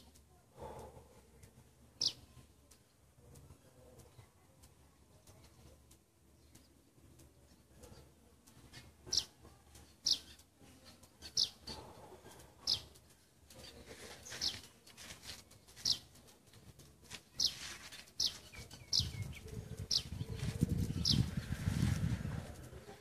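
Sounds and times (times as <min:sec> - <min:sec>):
bird chirping: 0:02.0 - 0:04.3, 0:05.2 - 0:16.2, 0:17.1 - 0:22.0.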